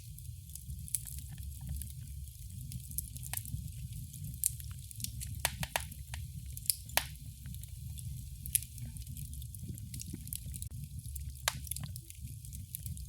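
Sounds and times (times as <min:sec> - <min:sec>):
fire pops and snaps: 0:00.0 - 0:13.0
low rumble of burning fire: 0:00.0 - 0:13.0.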